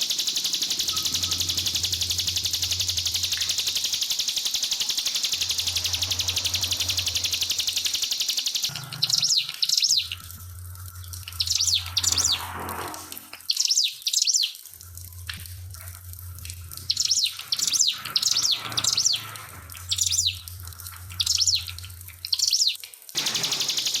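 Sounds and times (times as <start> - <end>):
bird buzzing trill: 0.0 - 10.2, 23.2 - 24.0.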